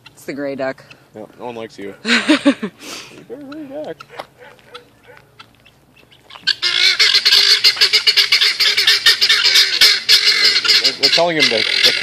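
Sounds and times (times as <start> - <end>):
fowl squawking: 3.3 - 12.0.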